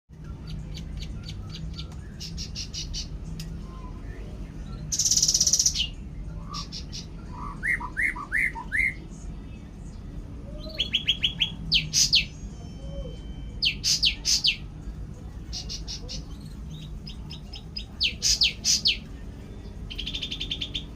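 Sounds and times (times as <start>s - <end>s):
loud buzzy bird trill: 4.8s - 9.0s, 10.4s - 14.7s, 15.5s - 19.1s, 19.9s - 20.9s.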